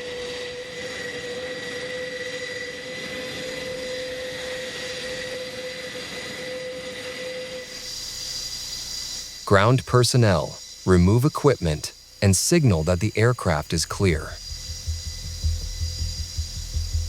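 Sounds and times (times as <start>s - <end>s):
constant high-pitched whine: 0.0s - 17.0s
turboprop engines running: 13.8s - 17.0s.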